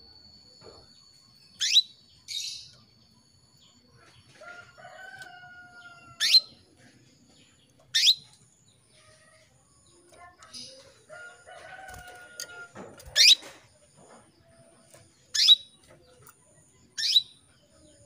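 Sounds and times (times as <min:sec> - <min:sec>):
rooster crowing: 0:04.4 - 0:06.5, 0:11.1 - 0:12.9.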